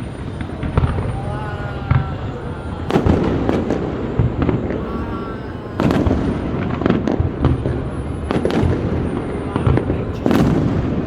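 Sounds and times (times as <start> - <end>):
firework booms: 0.0 - 11.0
firework cracks and pops: 5.8 - 11.0.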